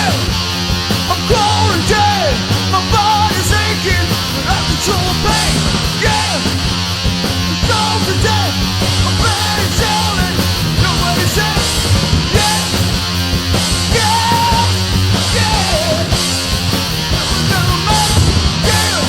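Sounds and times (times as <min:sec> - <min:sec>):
punk rock band playing: 0:00.0 - 0:19.0.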